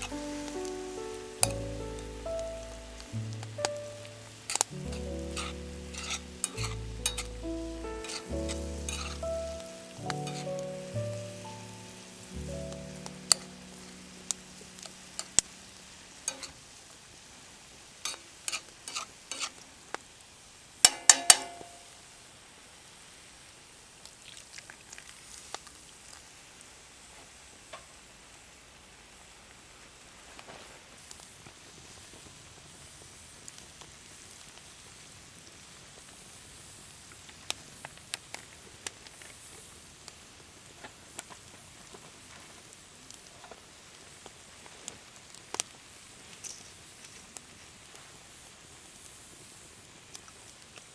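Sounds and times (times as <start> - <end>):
wood fire crackling: 0.0 - 17.0
metal utensil stirring in cookware: 4.4 - 10.6, 16.3 - 16.6.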